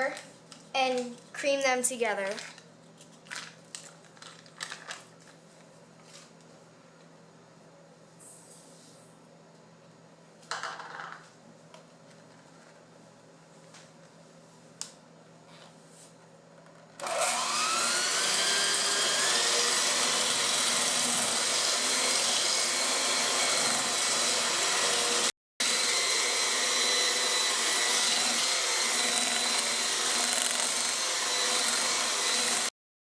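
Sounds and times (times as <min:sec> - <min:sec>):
electric mixer whirring: 0:17.0 - 0:32.7.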